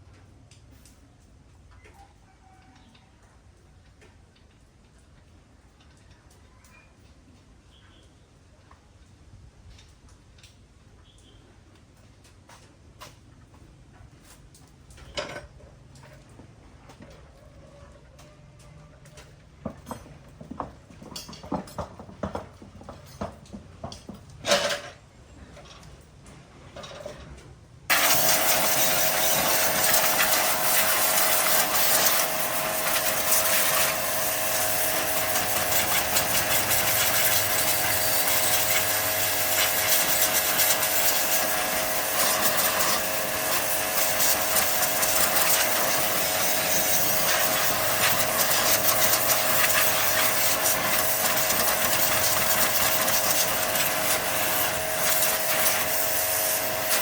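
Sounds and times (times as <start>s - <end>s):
clinks and knocks of tools: 19.1s - 26.1s
power tool grinding: 27.9s - 57.0s.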